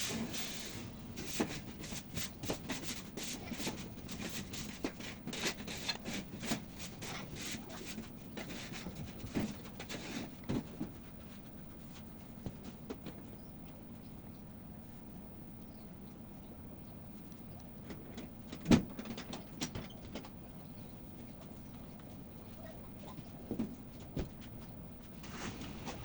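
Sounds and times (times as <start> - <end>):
light rubbing: 0.0 - 10.3.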